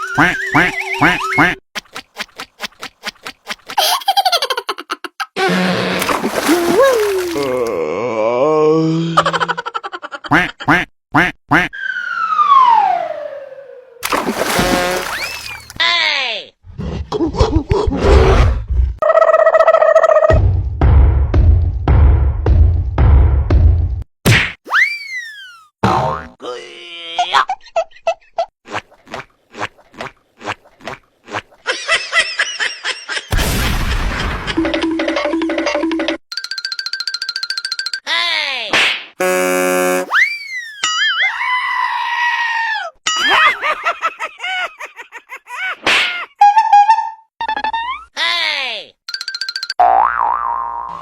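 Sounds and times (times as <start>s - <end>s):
duck quacks: 10.3s - 11.7s
falling whistle: 11.8s - 13.9s, 24.7s - 25.7s, 39.2s - 40.9s.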